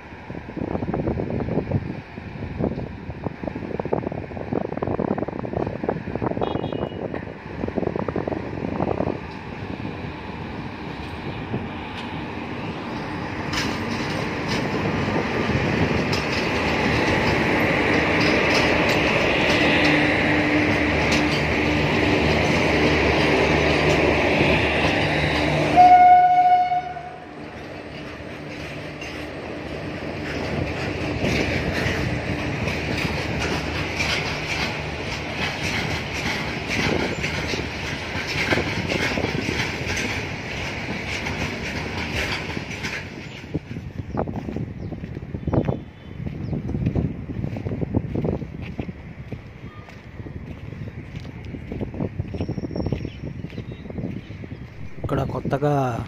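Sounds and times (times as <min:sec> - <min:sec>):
train rumble: 0:00.0 - 0:56.0
wheels clicking and clattering: 0:12.9 - 0:25.6, 0:27.6 - 0:44.6.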